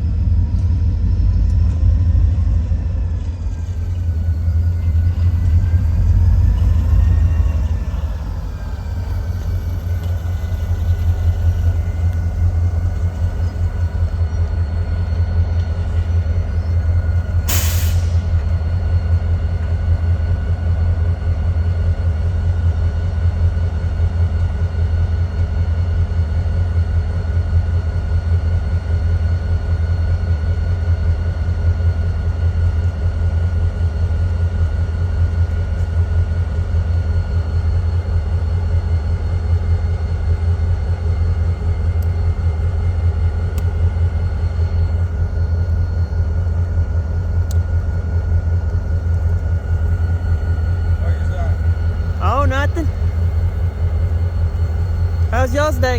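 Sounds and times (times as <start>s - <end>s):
diesel locomotive idling: 0.0s - 55.9s
air hiss burst: 17.5s - 18.3s.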